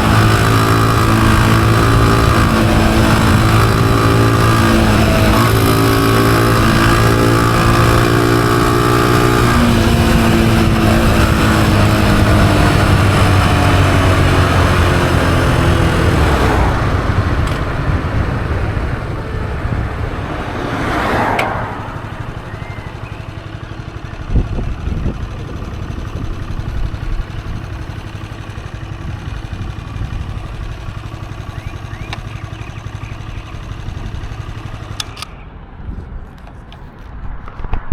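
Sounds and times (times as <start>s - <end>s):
wind noise: 0.0s - 28.0s, 35.7s - 37.9s
motorcycle engine running: 0.0s - 35.8s.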